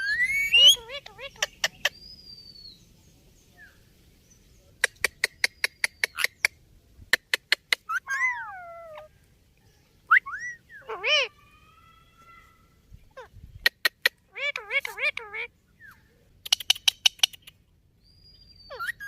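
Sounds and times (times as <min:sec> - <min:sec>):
parakeet whistled squawks: 0:00.0 - 0:01.2, 0:10.1 - 0:11.3.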